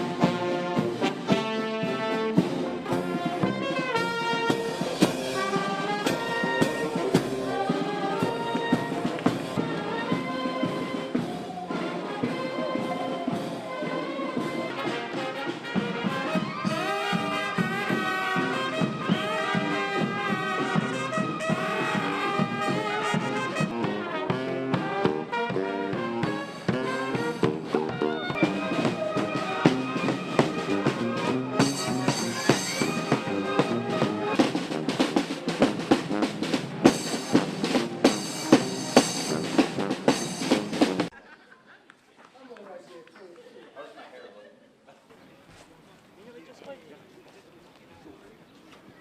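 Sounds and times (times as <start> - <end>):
drum kit: 0.0 - 9.9, 14.4 - 41.2
brass instruments playing: 0.0 - 41.2.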